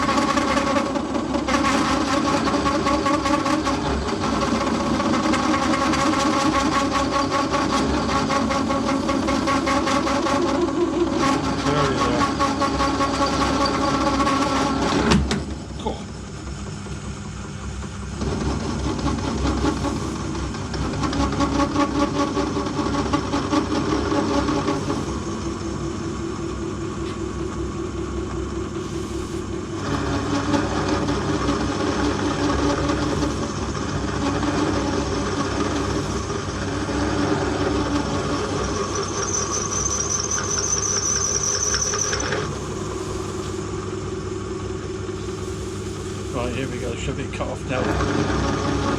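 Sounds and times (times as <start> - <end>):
cutting tool chattering and whining: 0.0 - 26.7, 28.6 - 43.9, 45.1 - 48.9
metal lathe running: 0.0 - 48.9
high squeal: 5.5 - 14.9, 28.8 - 43.9.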